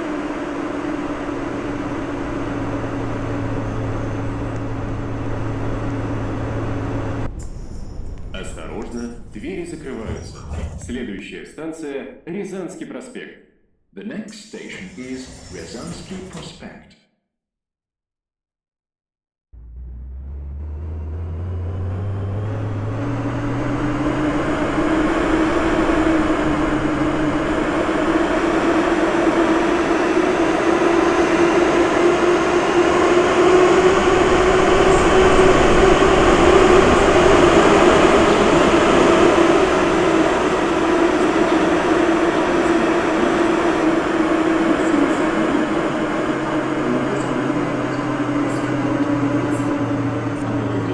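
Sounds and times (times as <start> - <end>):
traction motors whining: 0.0 - 10.4, 14.6 - 16.8, 19.6 - 50.9
train wheels rumbling: 0.0 - 11.1, 20.4 - 50.9.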